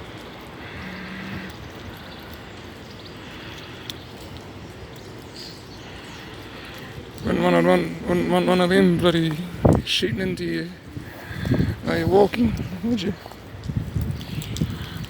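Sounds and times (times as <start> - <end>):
outdoor background noise: 0.0 - 15.0
faint clicks: 0.1 - 7.3, 12.5 - 15.0.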